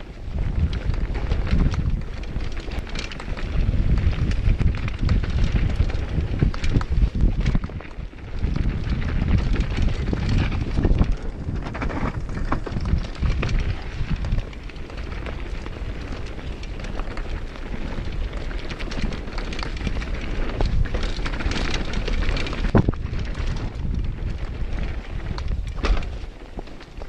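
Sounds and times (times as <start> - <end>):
bike rattling clicks and knocks: 0.0 - 27.0
tyres on dirt and rocks: 0.0 - 27.0
wind buffeting microphone: 0.0 - 27.0.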